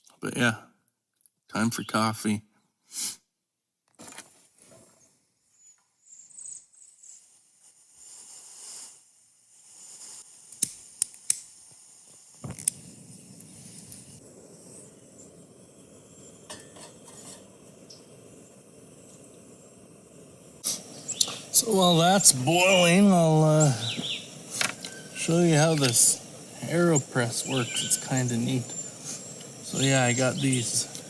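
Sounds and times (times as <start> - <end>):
camp stove burner rushing: 6.8 - 31.0.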